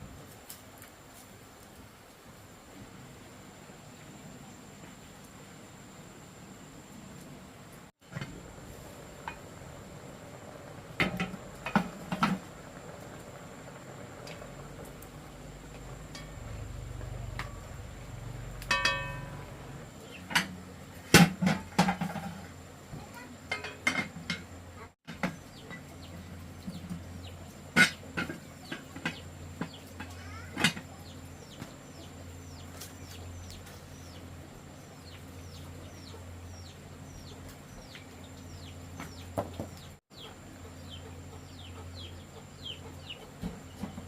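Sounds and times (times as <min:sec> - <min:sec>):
sharp knocks and clatter: 0:11.0 - 0:12.5, 0:20.3 - 0:22.5
birds chirping: 0:25.1 - 0:44.0.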